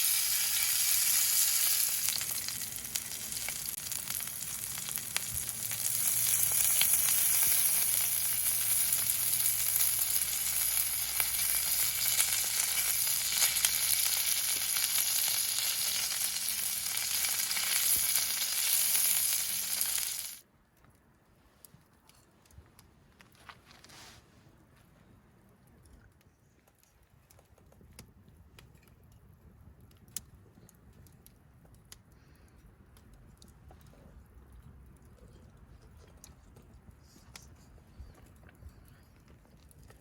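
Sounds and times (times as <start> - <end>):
food sizzling in a pan: 0.0 - 20.4.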